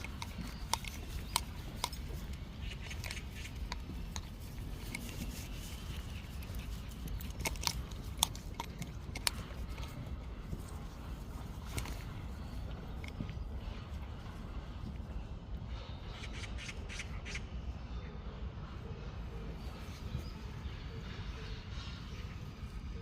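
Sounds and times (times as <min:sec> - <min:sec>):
dog claws clicking on pavement: 0:00.0 - 0:14.0.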